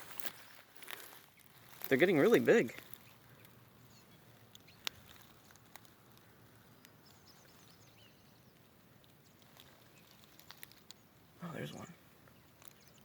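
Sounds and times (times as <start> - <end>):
distant bird chirps: 6.6 - 8.6.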